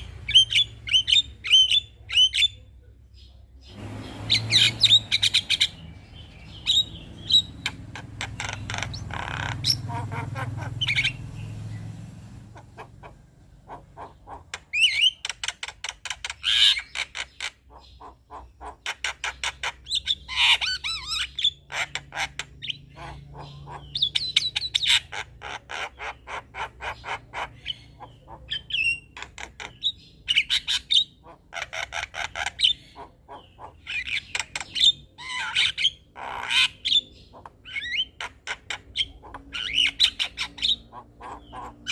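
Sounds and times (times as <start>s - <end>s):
myna chattering: 6.4s - 11.4s, 12.4s - 14.9s.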